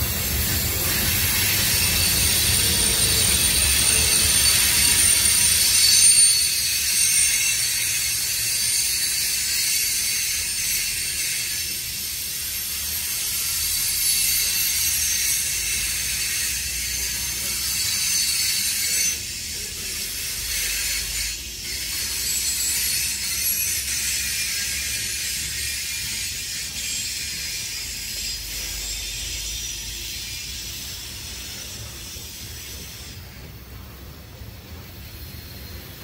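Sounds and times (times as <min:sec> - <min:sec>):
train wheels clattering on rails: 0:00.0 - 0:07.5.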